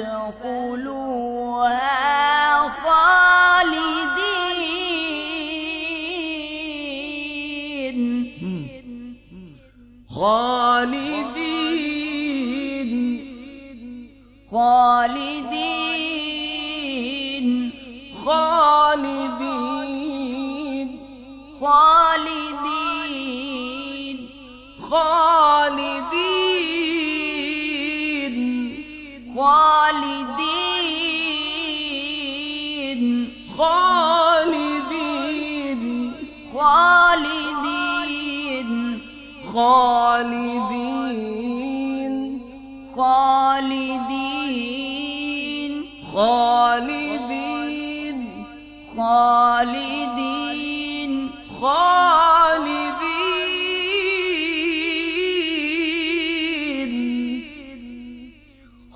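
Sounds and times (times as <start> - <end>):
person chanting melodic recitation: 0.0 - 58.5
breaths: 8.4 - 10.1, 58.2 - 58.9.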